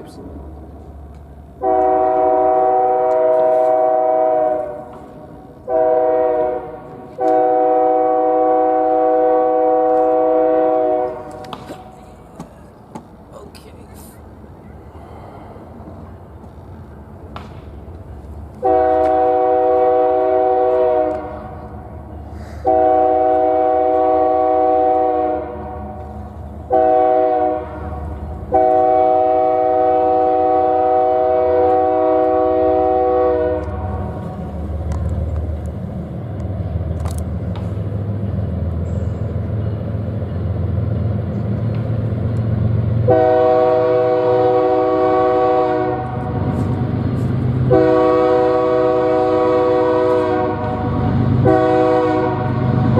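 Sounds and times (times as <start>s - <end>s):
passing train rumble: 0.0s - 52.9s
locomotive air horn blasts: 1.6s - 11.5s, 18.6s - 21.6s, 22.6s - 34.4s, 43.0s - 46.6s, 47.6s - 52.8s.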